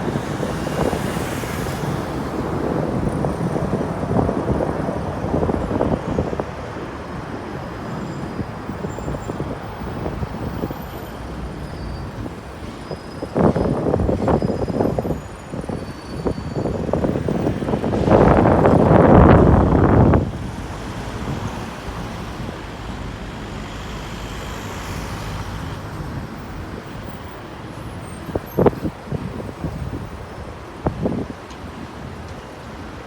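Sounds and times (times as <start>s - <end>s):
steady outdoor background: 0.0s - 33.0s
wind buffeting microphone: 0.0s - 33.0s.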